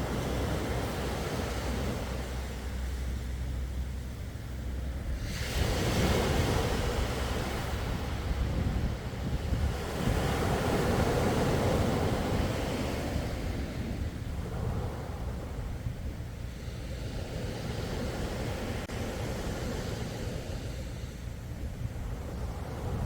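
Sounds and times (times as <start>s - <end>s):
sea waves washing onto shore: 0.0s - 23.0s
wind rumble on microphone: 0.0s - 23.0s.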